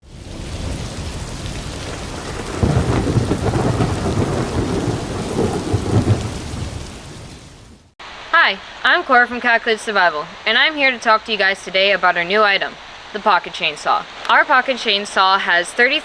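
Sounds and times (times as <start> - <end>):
thunder rumble: 0.0 - 14.9
rain falling: 0.0 - 16.0.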